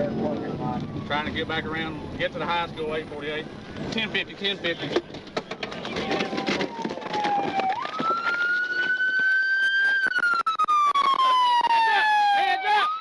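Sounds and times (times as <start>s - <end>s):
police siren wailing: 0.0s - 2.9s, 6.1s - 13.0s.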